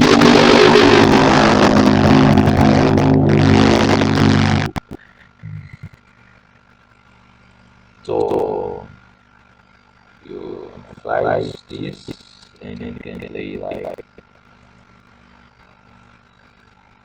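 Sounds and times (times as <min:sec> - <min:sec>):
distorted microphone buzzing: 0:00.0 - 0:06.1, 0:08.1 - 0:09.0, 0:10.2 - 0:14.2
faint hum: 0:00.0 - 0:16.5.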